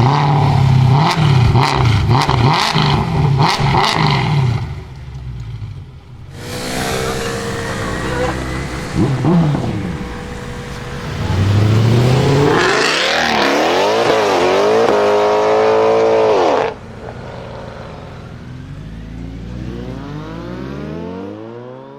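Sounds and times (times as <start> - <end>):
car engine accelerating hard: 6.2 - 21.9
quieter engine rising in pitch: 6.3 - 21.9.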